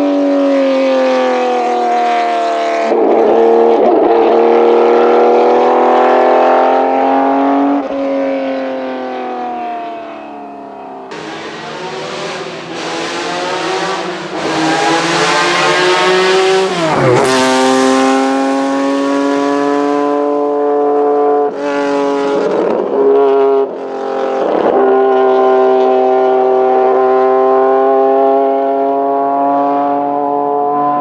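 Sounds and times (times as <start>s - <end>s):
racing car engine passing: 2.3s - 20.9s.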